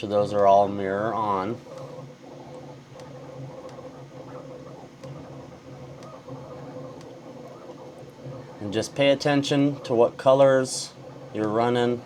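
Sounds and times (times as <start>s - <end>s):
low background hum: 0.0s - 12.0s
computer mouse clicks: 1.7s - 8.4s.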